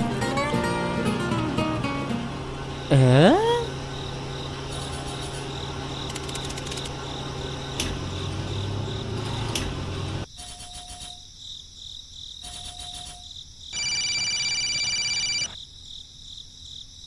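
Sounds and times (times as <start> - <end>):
high-pitched tone: 0.0 - 3.8
low mechanical hum: 0.0 - 11.2
crickets chirping: 0.1 - 17.0.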